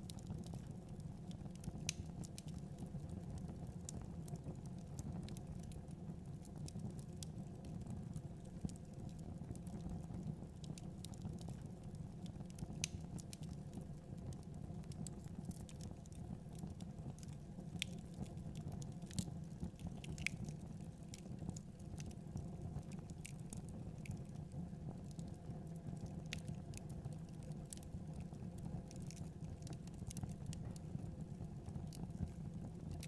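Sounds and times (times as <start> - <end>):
low rumble of burning fire: 0.0 - 33.0
wood fire crackling: 0.0 - 33.0
sharp pops from fire: 20.0 - 21.3.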